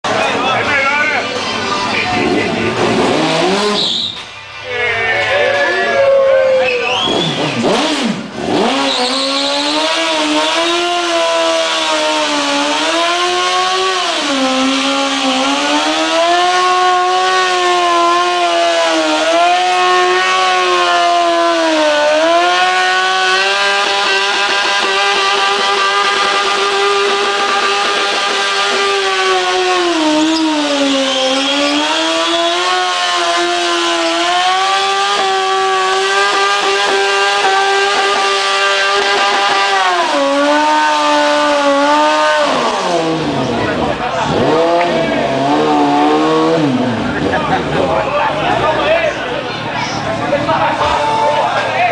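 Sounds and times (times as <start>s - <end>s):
engine at high revs: 0.0s - 4.1s, 6.8s - 51.9s.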